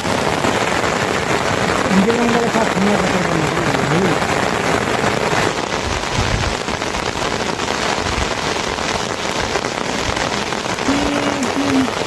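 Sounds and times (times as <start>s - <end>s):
rain pattering on surfaces: 0.0s - 12.0s.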